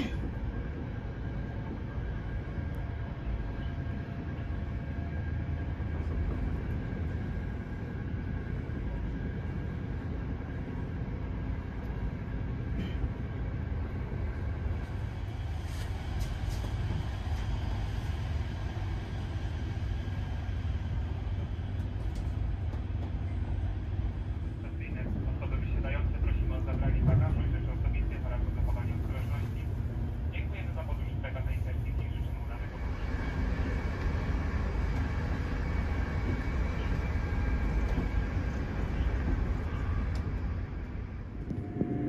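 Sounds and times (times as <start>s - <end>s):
train carriage rumbling on rails: 0.0s - 42.0s.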